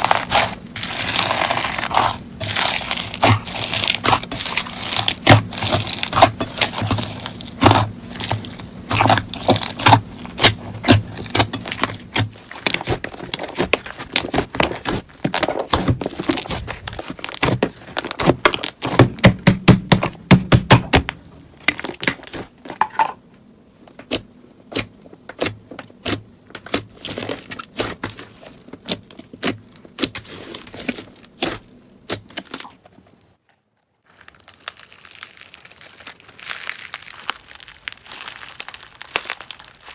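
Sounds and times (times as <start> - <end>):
slime crackling pops: 0.0 - 19.2, 34.6 - 39.9.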